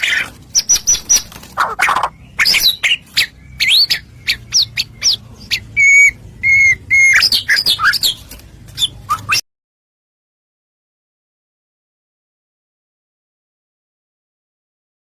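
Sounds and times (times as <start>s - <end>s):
bird singing whistled song: 0.5s - 1.3s, 1.9s - 8.2s, 8.8s - 9.4s.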